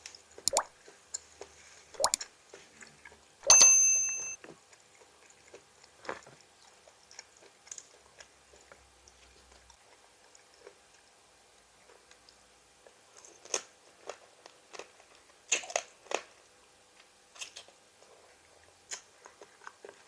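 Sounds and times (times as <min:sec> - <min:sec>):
chewing crisp raw vegetables: 0:00.4 - 0:03.4, 0:04.4 - 0:20.0
sharp metallic clink: 0:03.5 - 0:04.4.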